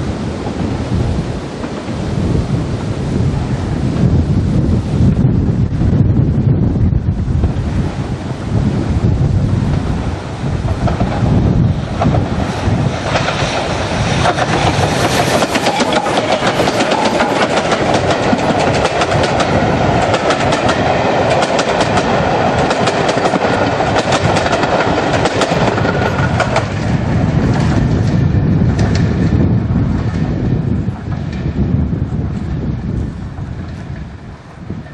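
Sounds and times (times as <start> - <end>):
train wheels clattering: 10.6 - 29.4.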